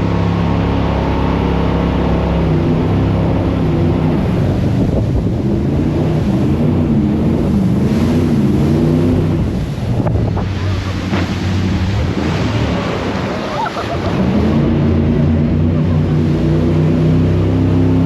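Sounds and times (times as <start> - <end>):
jet boat engine running: 0.0 - 18.0
rushing water: 0.0 - 18.0
wind buffeting microphone: 2.8 - 15.7.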